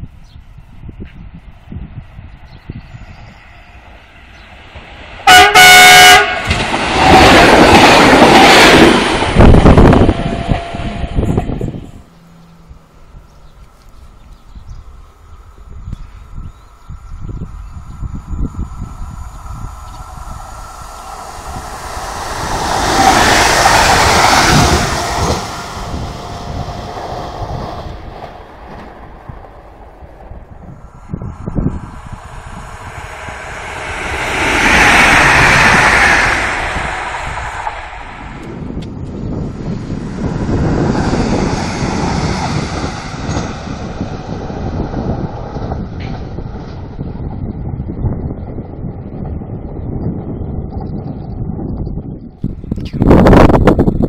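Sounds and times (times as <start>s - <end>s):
train passing rush: 0.0s - 54.0s
train horn blasts: 5.2s - 6.6s, 9.8s - 11.8s, 24.0s - 26.7s.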